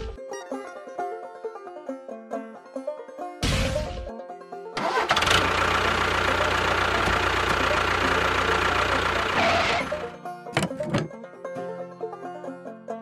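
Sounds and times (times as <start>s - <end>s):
engine running with even rumble: 4.8s - 11.1s.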